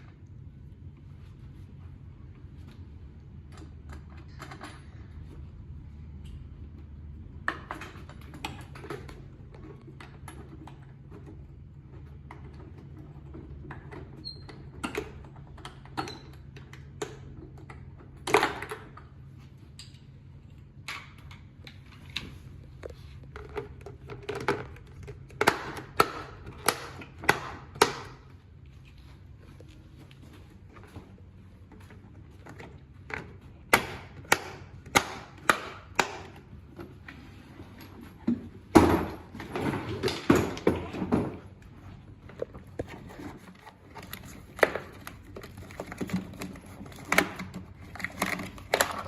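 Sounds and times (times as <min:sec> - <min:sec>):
hand tools clicking and knocking: 0:20.9 - 0:28.2, 0:32.5 - 0:41.4, 0:42.3 - 0:49.0.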